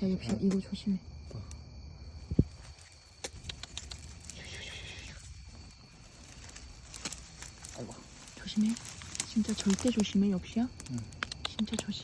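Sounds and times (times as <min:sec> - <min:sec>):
handling clicks and rustles: 0:05.3 - 0:12.0.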